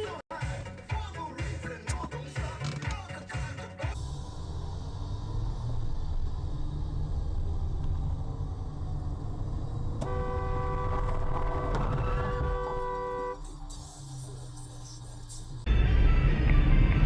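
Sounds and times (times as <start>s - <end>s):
car road and engine rumble: 1.7s - 17.0s
car horn held: 10.0s - 13.4s.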